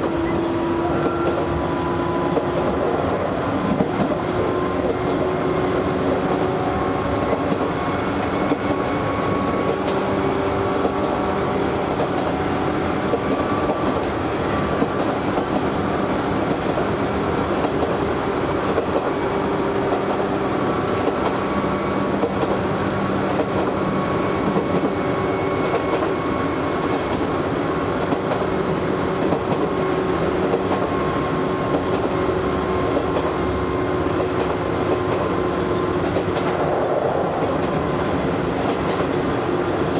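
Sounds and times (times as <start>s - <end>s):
clickety-clack over rail joints: 0.0s - 39.9s.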